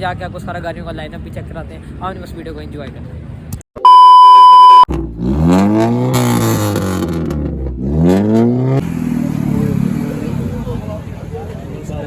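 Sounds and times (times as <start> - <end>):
loud electronic beep: 3.8 - 4.9
car engine revving: 4.9 - 11.4.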